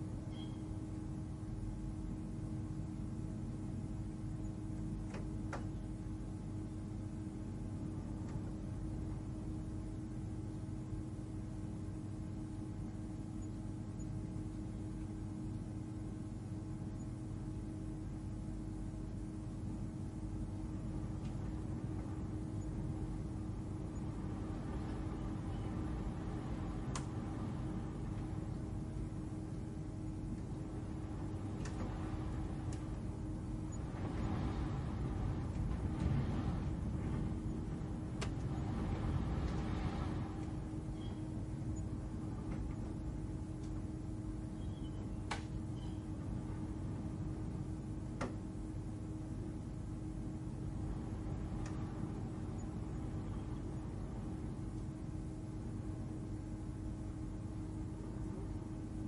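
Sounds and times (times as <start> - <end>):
low ambient drone hum: 0.0 - 59.0
faint held tone: 0.3 - 0.9, 40.7 - 42.1
faint tick: 8.2 - 8.4, 26.9 - 27.1, 51.6 - 51.8.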